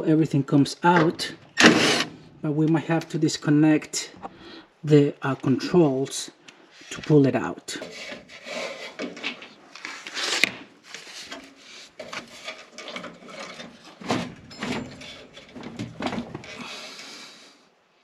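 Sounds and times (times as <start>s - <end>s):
sheet metal knocks and rattles: 12.8s - 16.6s.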